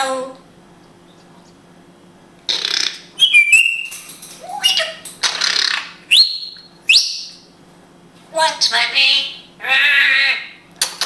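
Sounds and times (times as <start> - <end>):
parrot squawks and whistles: 2.5 - 7.4.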